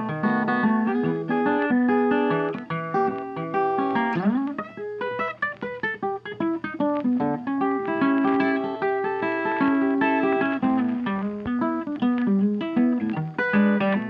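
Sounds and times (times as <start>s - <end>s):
acoustic guitar melody: 0.0s - 14.0s.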